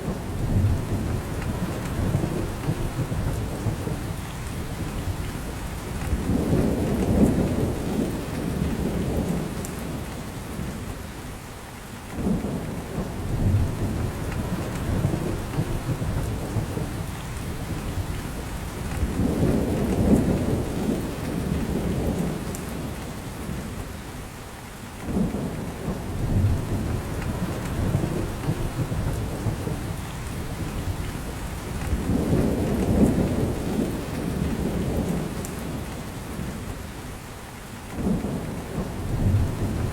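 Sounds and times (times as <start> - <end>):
rain falling through forest: 0.0 - 39.9.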